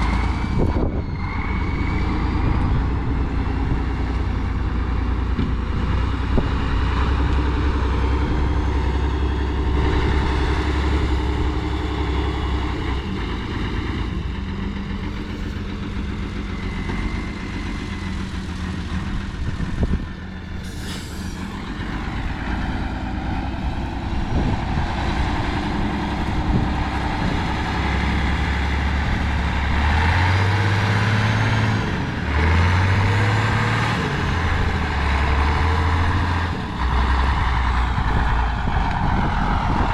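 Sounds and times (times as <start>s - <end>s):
truck engine running and revving: 0.0s - 39.9s
brief hiss: 20.6s - 21.6s.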